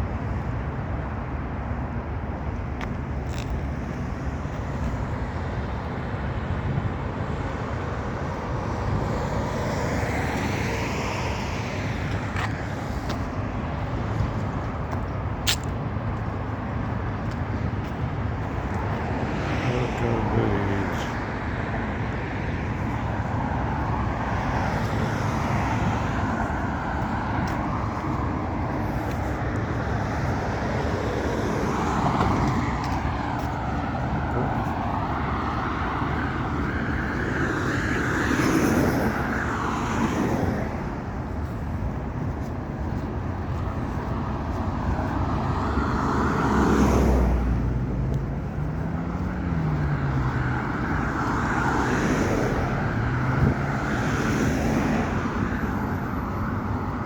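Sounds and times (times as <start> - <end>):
road traffic passing: 0.0 - 57.0.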